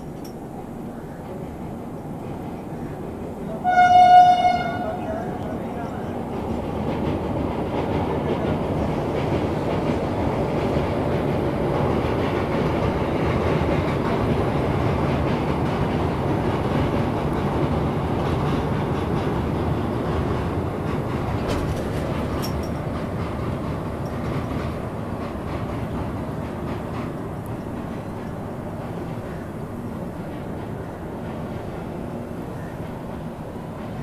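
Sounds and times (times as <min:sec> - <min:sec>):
train wheels rumbling on bridge: 0:00.0 - 0:34.0.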